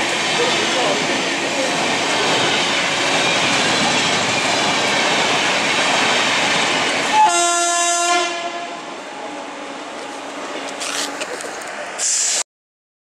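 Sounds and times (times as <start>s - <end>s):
train wheels rattling on rail: 0.0s - 8.5s
locomotive horn blast: 7.1s - 8.8s.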